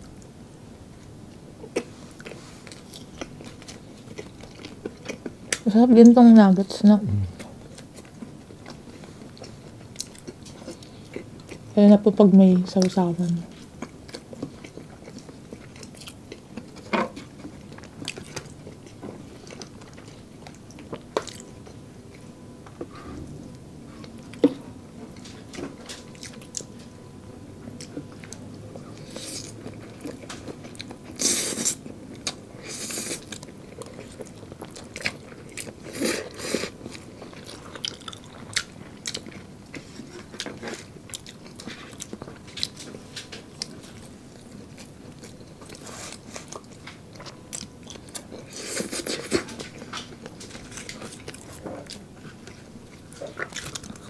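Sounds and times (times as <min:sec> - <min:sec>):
biting and chewing food: 0:33.2 - 0:54.0.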